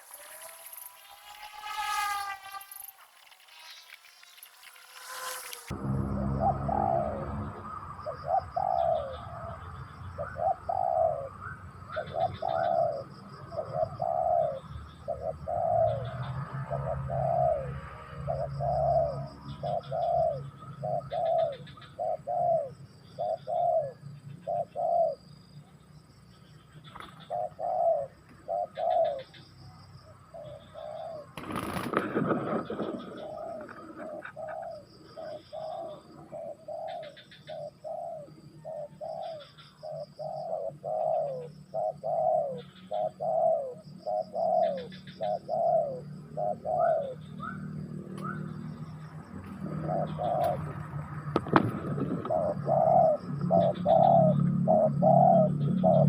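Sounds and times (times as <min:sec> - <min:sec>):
dove cooing: 0:08.0 - 0:25.2, 0:27.0 - 0:29.3, 0:30.4 - 0:48.5, 0:49.6 - 0:50.8, 0:51.4 - 0:56.0.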